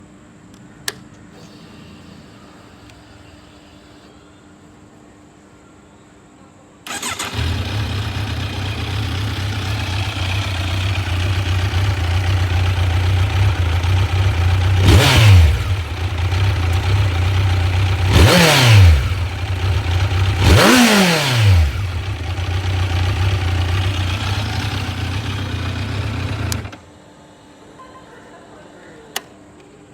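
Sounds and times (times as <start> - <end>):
motorcycle engine idling and revving: 6.9 - 26.8.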